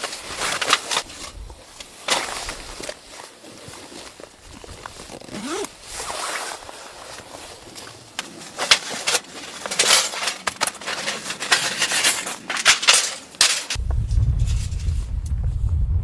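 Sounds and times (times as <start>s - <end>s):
crunching and clicking: 0.0s - 13.8s
steady low rumble: 13.8s - 16.0s.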